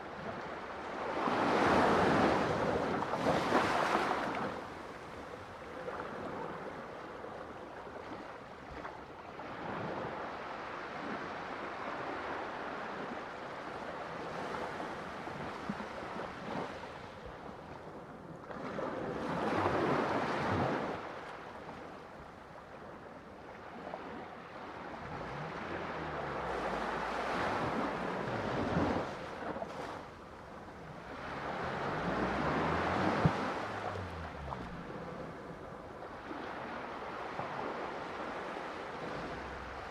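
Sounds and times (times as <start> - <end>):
ocean waves breaking: 0.0 - 8.9, 22.6 - 39.9.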